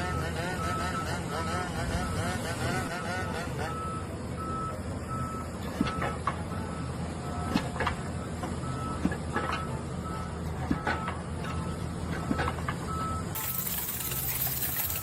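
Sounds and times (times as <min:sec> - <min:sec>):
reversing alarm beeping: 0:00.0 - 0:02.1, 0:02.8 - 0:14.9
low engine running: 0:12.9 - 0:15.0.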